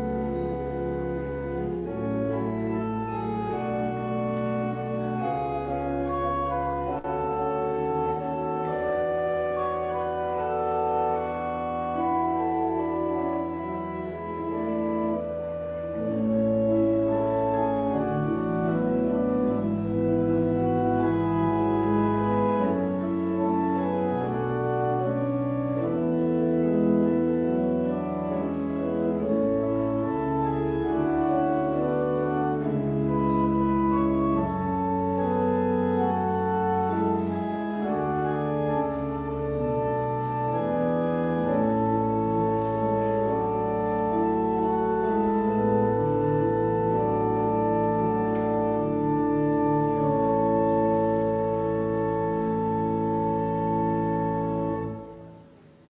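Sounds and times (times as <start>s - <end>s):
organ music: 0.0s - 55.9s.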